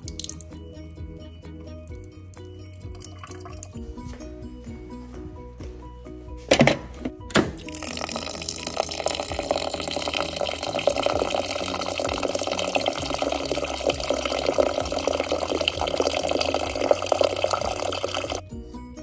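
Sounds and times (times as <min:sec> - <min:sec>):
tap water running into a pot: 0:07.6 - 0:18.4.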